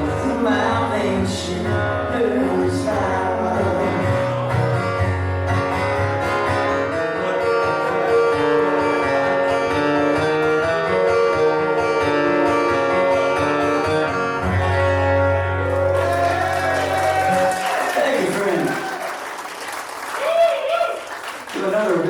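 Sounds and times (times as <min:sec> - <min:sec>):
guitar playing: 0:00.0 - 0:17.6.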